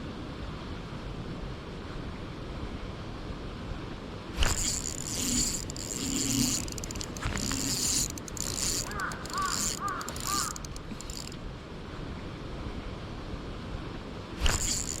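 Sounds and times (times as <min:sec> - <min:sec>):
spinning reel whirring: 0:04.4 - 0:11.4, 0:14.4 - 0:15.0
bird calling: 0:05.7 - 0:11.4.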